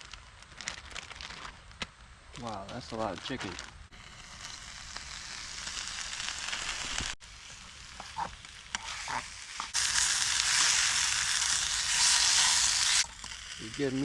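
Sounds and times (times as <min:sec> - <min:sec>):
chicken sizzling in a pan: 0:03.9 - 0:14.0.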